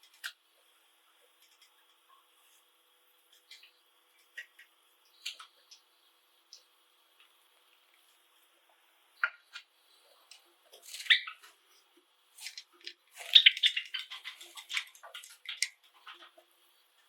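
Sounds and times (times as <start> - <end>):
sparrows chirping: 11.0 - 11.5, 13.2 - 14.5.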